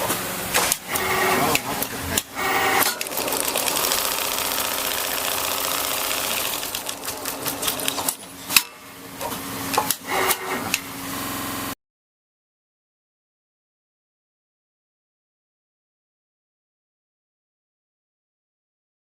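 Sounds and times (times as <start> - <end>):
sewing machine stitching: 2.4 - 8.2.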